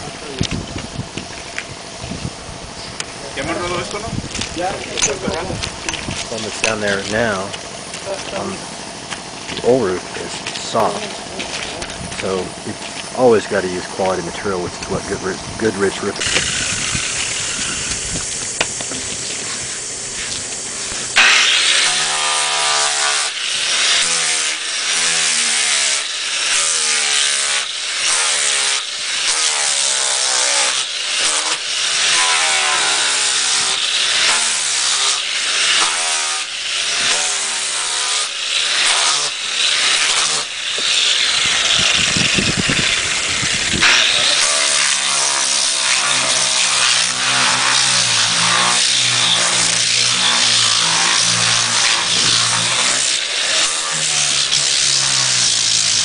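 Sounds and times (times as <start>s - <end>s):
power tool motor under load: 15.2s - 56.0s.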